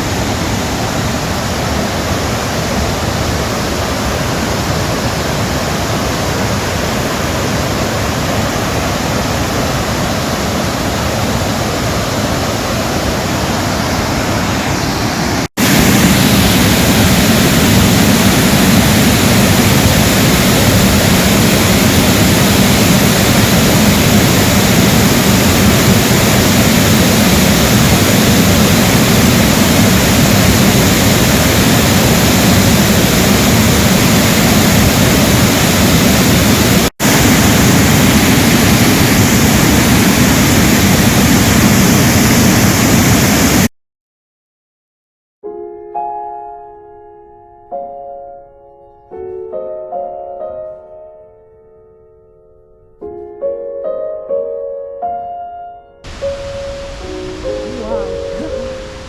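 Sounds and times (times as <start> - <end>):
waterfall rushing: 0.0 - 43.7, 56.1 - 59.0.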